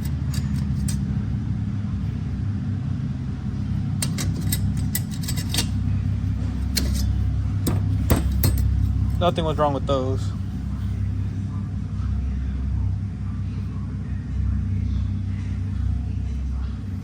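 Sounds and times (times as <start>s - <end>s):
metal clutch plates clinking: 0.0s - 1.4s, 3.4s - 11.4s
steady low hum: 0.0s - 17.0s.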